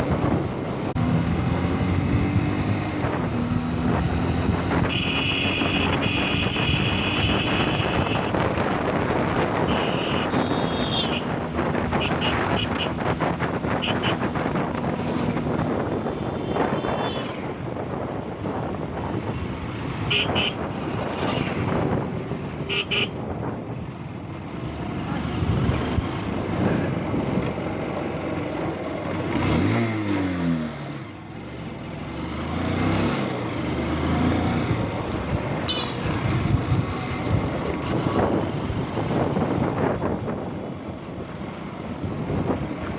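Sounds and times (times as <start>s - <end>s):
road and traffic noise: 0.0s - 42.9s
engine revving: 0.9s - 7.5s, 29.3s - 31.0s, 32.2s - 34.8s
wind on microphone: 36.2s - 42.9s.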